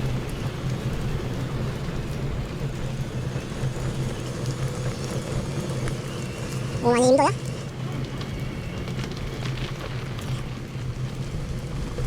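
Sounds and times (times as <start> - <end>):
wind rumble on microphone: 7.4 - 12.0.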